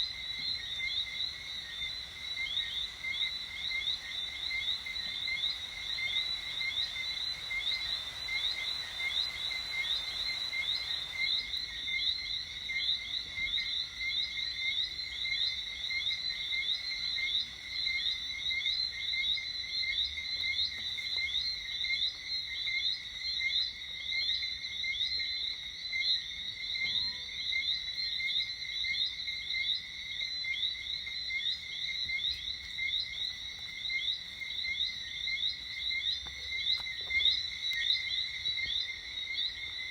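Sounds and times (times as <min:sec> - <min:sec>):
faint hiss: 0:00.0 - 0:13.5
frogs chirping: 0:00.0 - 0:39.9.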